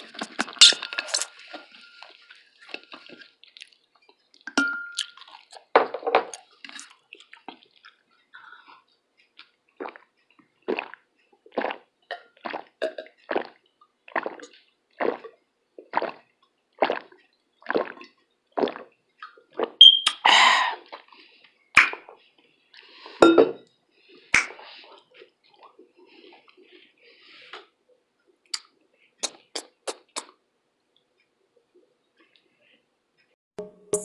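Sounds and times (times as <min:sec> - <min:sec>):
gulps of water swallowed: 0:09.8 - 0:10.1, 0:10.7 - 0:21.2.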